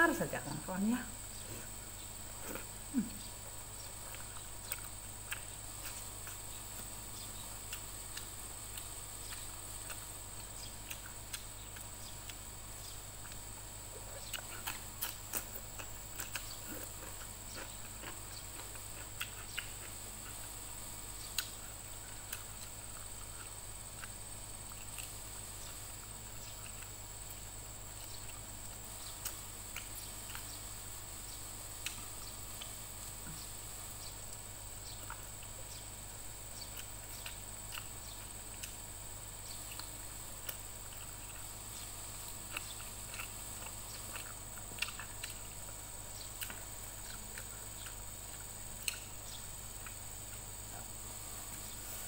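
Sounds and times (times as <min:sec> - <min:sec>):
chewing and lip smacks: 0:02.4 - 0:06.9, 0:07.6 - 0:20.5, 0:21.3 - 0:27.4, 0:34.9 - 0:35.6, 0:36.6 - 0:38.8, 0:42.5 - 0:45.8, 0:46.4 - 0:50.9
high-pitched hiss: 0:48.5 - 0:52.0.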